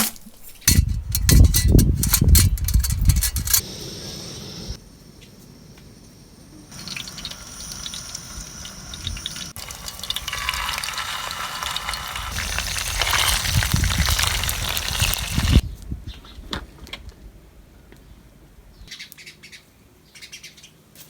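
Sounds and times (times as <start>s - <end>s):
water running and splashing: 6.7s - 15.6s.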